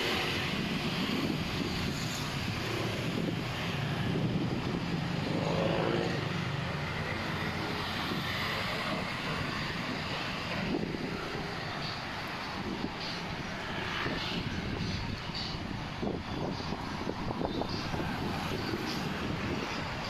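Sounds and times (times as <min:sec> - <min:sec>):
engine drone: 0:00.0 - 0:20.0
outdoor noise: 0:00.0 - 0:20.0.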